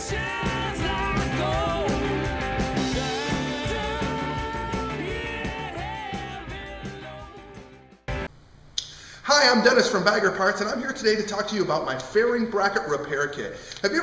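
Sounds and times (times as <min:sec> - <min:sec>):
upbeat rock song with singing: 0:00.0 - 0:08.3.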